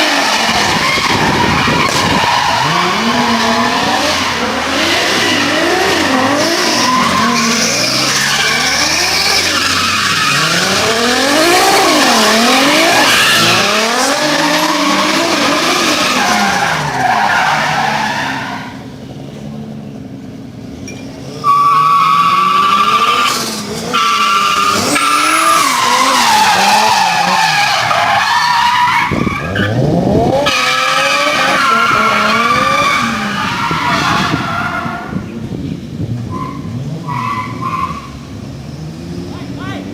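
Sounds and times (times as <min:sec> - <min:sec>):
car engine revving hard: 0:00.0 - 0:16.9, 0:29.0 - 0:35.2
tyres squealing: 0:21.4 - 0:29.8.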